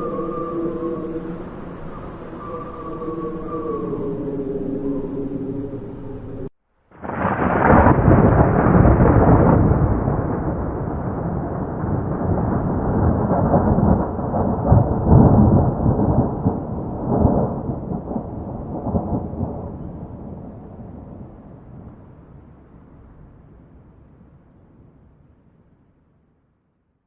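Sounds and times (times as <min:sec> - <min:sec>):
rolling thunder: 0:00.0 - 0:21.9.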